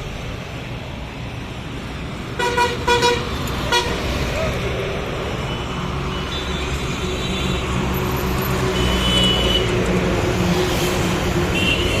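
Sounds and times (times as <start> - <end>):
truck diesel engines droning: 0.0 - 12.0.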